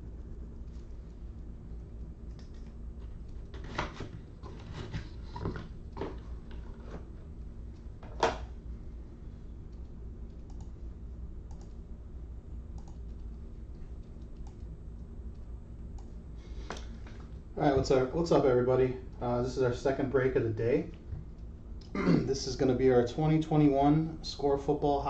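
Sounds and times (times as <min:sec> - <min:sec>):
low steady hum: 0:00.0 - 0:25.0
computer keyboard typing clicks: 0:09.7 - 0:10.8, 0:11.5 - 0:11.8, 0:12.8 - 0:13.3, 0:14.1 - 0:14.7.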